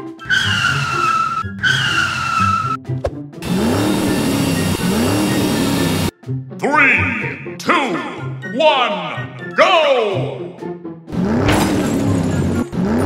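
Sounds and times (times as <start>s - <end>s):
background music: 0.0s - 13.0s
tire screech sound effect: 0.1s - 6.1s, 11.1s - 13.0s
car engine revving: 3.4s - 6.1s, 11.1s - 13.0s.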